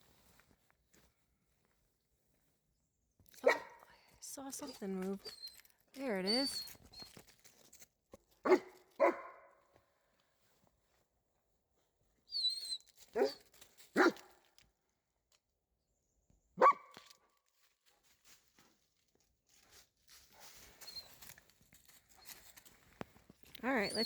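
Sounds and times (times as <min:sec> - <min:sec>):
dog barking: 0:03.4 - 0:03.9, 0:08.4 - 0:09.6, 0:13.1 - 0:13.4, 0:14.0 - 0:14.3, 0:16.6 - 0:17.0.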